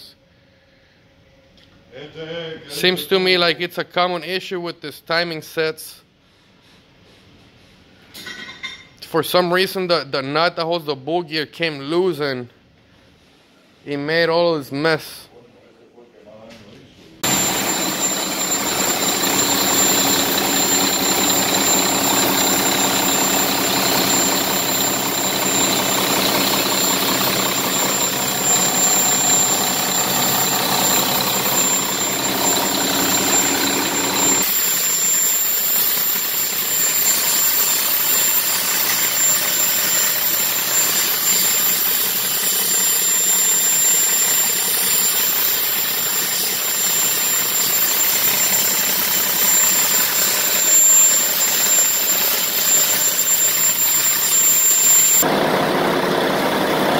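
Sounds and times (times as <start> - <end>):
diesel engine idling: 17.2 - 34.4, 55.3 - 56.9
steady high whine: 17.2 - 56.9.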